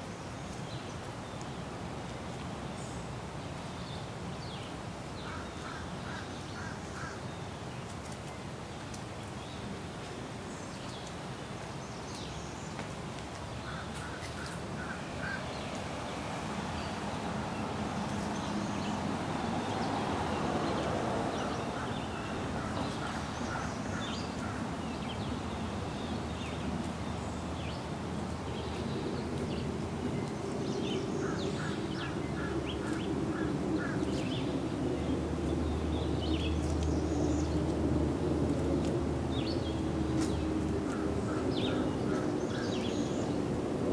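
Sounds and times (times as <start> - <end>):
wild birds calling: 5.2 - 7.4, 13.6 - 37.6, 39.3 - 43.5.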